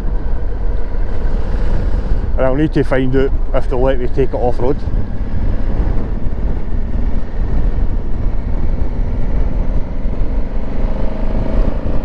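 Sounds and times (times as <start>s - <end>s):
motorcycle engine and road rumble: 0.0s - 12.0s
wind rush on microphone: 0.0s - 12.0s.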